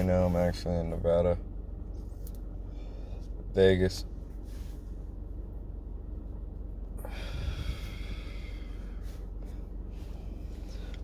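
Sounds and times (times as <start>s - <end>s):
steady low hum: 0.0s - 11.0s
person inhaling or exhaling smoke: 7.0s - 9.1s.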